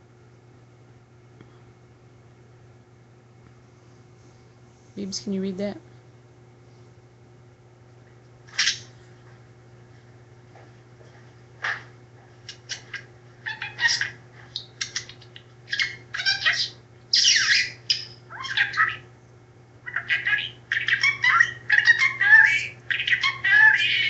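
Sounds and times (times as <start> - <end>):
steady low hum: 0.0 - 24.0
parrot squawking: 8.5 - 8.9, 12.5 - 19.1, 19.8 - 24.0.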